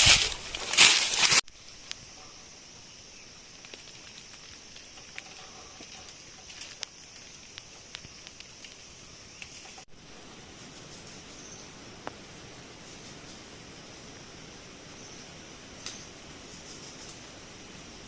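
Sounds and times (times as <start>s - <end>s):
low steady hiss: 0.0s - 18.0s
small ticks and clicks: 3.6s - 9.8s.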